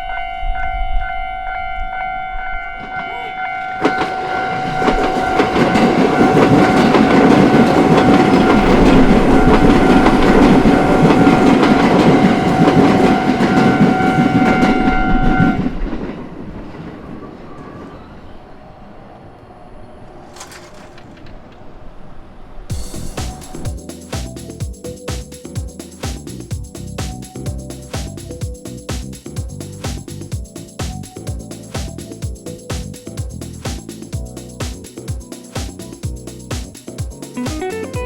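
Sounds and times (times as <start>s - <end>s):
level crossing warning bell: 0.0s - 15.7s.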